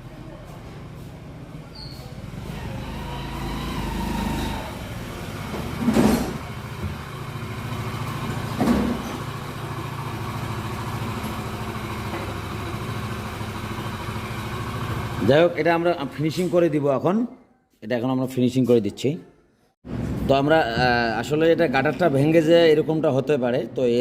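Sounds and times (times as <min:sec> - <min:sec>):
motorcycle engine running: 0:01.4 - 0:16.3
loud engine bursts: 0:02.2 - 0:16.3.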